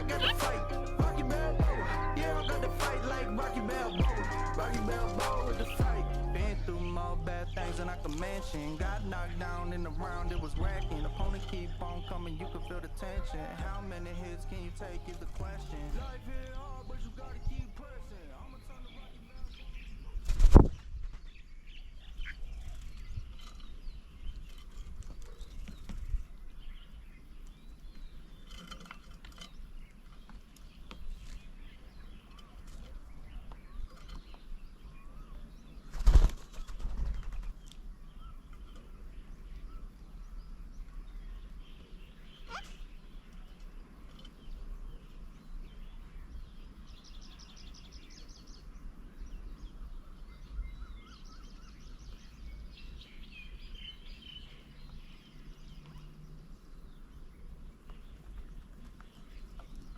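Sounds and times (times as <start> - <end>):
wing flurry: 0.0 - 6.2, 20.0 - 21.5, 35.8 - 37.8
rapid ticking trill: 0.0 - 17.7
bird chirps and calls: 0.0 - 59.9
steady outdoor hiss: 0.0 - 59.9.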